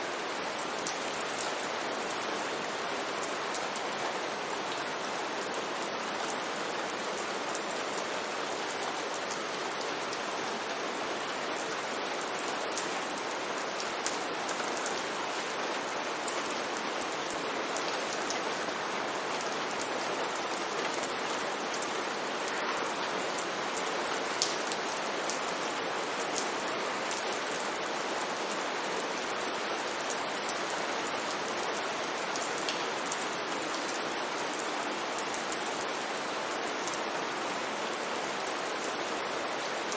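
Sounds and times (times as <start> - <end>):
rain hissing on street: 0.0 - 39.9
raindrops ticking: 24.4 - 25.0.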